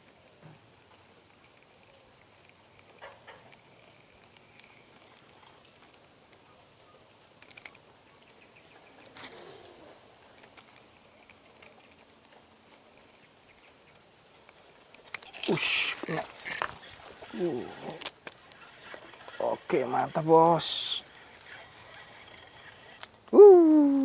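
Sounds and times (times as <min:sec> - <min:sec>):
brief rustle: 0:14.9 - 0:20.1
thin high hiss: 0:15.3 - 0:18.0.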